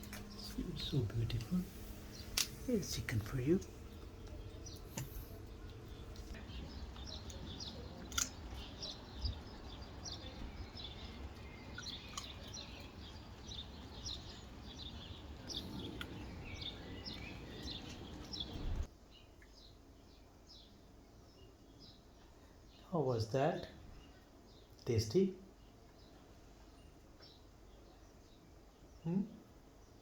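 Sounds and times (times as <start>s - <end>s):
birds chirping and singing: 0.0s - 18.9s
sharp clicks: 6.1s - 9.4s.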